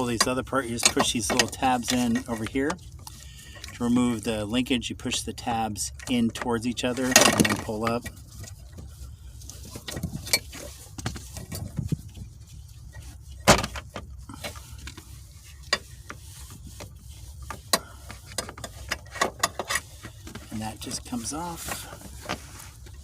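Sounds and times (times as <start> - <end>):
low steady rumble: 0.0 - 23.0
clicks and knocks of shift linkage: 0.1 - 2.8, 17.5 - 20.5.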